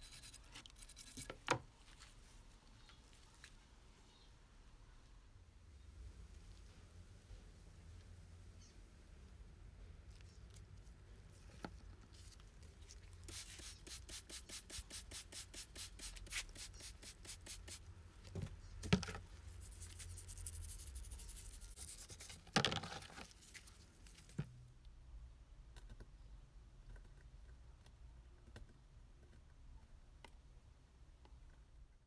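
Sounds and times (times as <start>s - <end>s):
rubbing strokes on metal: 13.3s - 17.8s.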